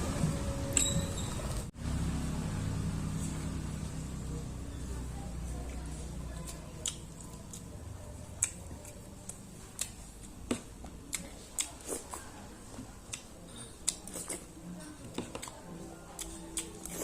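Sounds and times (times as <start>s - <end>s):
chewing food with wet smacks: 5.6s - 17.0s.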